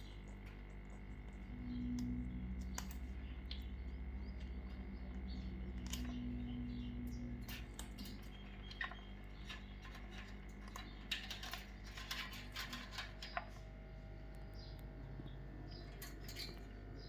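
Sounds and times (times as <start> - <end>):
parrot beak and claws clicking: 0.0 - 3.8
faint steady hum: 0.0 - 17.0.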